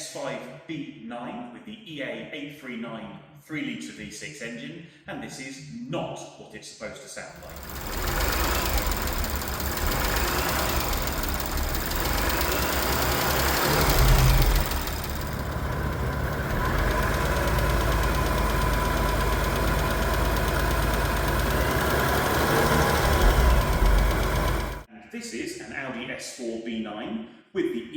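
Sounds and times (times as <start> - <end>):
car engine running: 7.4 - 24.9
tappy engine knocking: 7.4 - 24.9.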